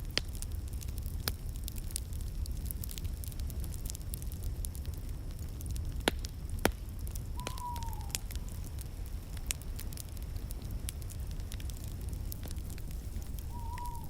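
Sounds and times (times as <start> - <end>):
sharp pops from fire: 0.0 - 14.0
wood fire crackling: 0.0 - 14.0
faint falling whistling tone: 7.4 - 8.2, 13.1 - 14.0
low rumble: 12.1 - 14.0.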